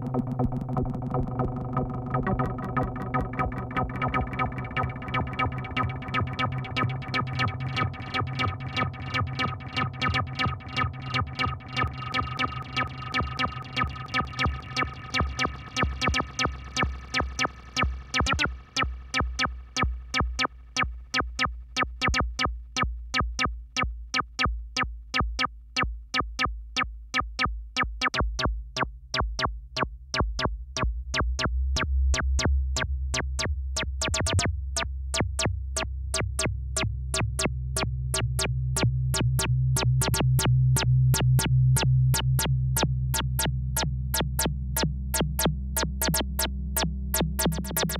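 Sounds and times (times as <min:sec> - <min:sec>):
deep sustained bass tone: 0:00.0 - 0:21.2, 0:30.2 - 0:47.9
synthesizer repeating sequence: 0:00.0 - 0:22.5, 0:27.8 - 0:28.5, 0:33.4 - 0:34.5, 0:38.1 - 0:38.5, 0:43.2 - 0:43.5, 0:44.1 - 0:47.9.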